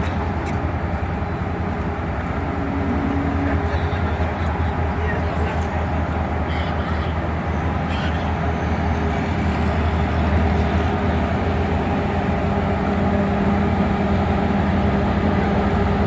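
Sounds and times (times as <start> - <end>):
train rolling rumble: 0.0 - 16.0.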